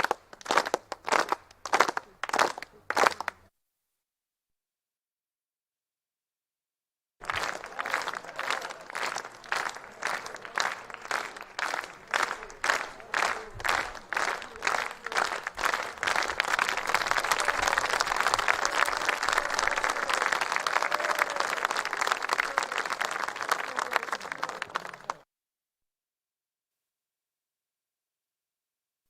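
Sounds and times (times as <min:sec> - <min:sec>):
crowd clapping in rhythm: 0:00.0 - 0:03.4, 0:07.2 - 0:25.2.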